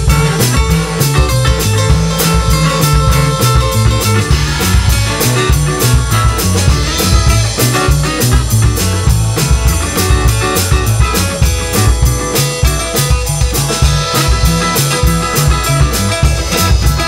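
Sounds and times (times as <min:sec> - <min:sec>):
acoustic guitar: 0:00.0 - 0:17.0
bass line: 0:00.0 - 0:17.0
drum kit beat: 0:00.0 - 0:17.0
electric guitar: 0:00.0 - 0:17.0.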